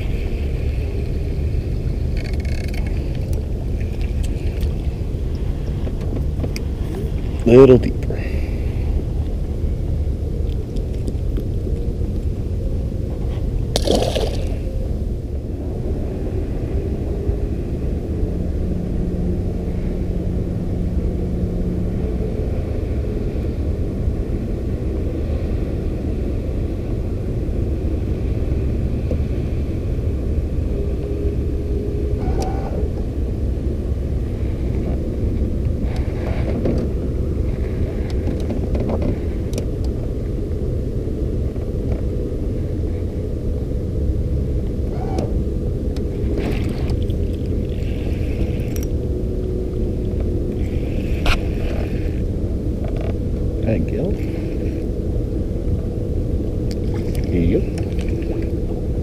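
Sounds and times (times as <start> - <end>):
boat motor running: 26.5 - 59.0.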